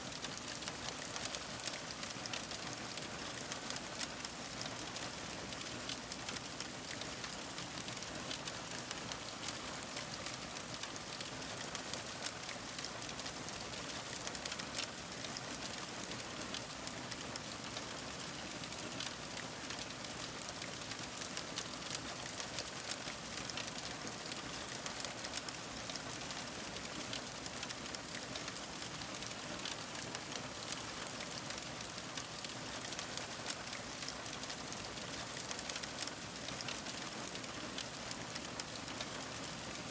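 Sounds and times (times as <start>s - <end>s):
fire crackling and popping: 14.2s - 14.6s, 31.8s - 34.2s, 34.9s - 39.2s.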